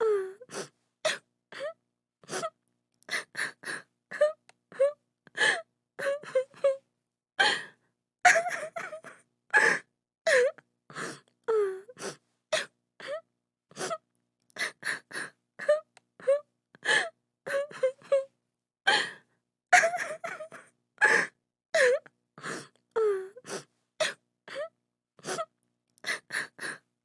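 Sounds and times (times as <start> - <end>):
woman sobbing: 3.2 - 6.8, 8.3 - 10.6, 15.6 - 18.3, 19.8 - 22.0.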